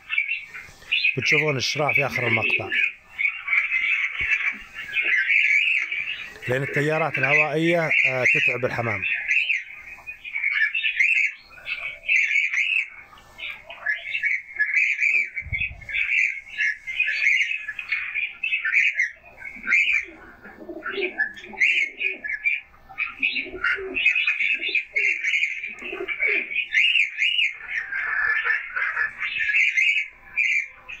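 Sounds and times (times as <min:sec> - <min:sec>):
birds chirping: 0:00.0 - 0:31.0
pigeon cooing: 0:00.0 - 0:31.0.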